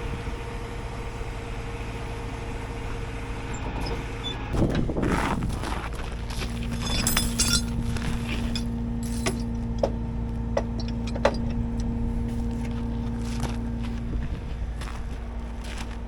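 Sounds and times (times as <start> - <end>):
truck engine humming: 0.0 - 16.0
metallic jingle: 6.7 - 9.5.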